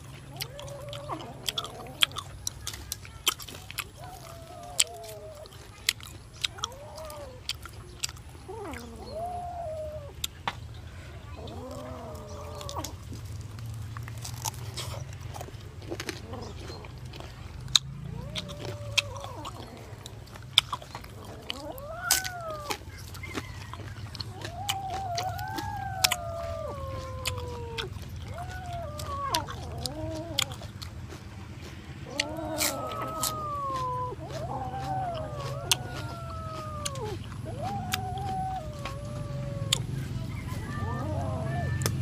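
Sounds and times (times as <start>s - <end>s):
animal calling: 0.0s - 42.0s
chewing with wet smacks: 0.0s - 42.0s.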